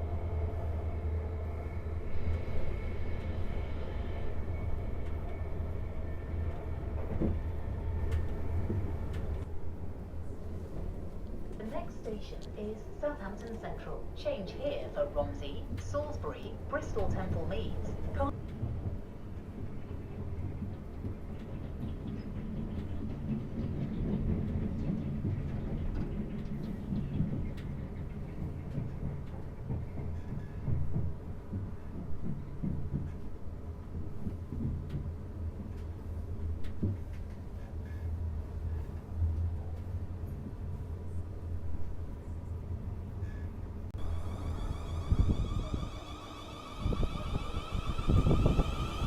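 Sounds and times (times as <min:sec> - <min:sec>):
train wheels rumbling on rails: 0:00.0 - 0:49.0
faint high whine: 0:44.0 - 0:49.0.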